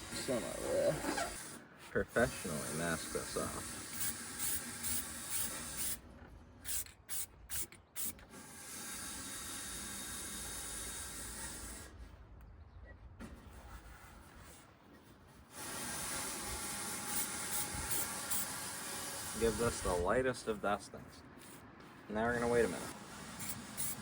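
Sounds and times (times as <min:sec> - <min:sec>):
aerosol spray can hissing: 0:23.4 - 0:24.0.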